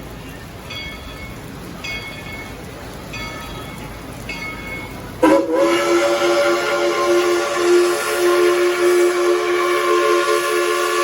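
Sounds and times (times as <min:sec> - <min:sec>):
locomotive bell ringing: 0:00.6 - 0:06.0
steam hissing: 0:03.1 - 0:11.0
steam whistle blowing: 0:05.2 - 0:11.0.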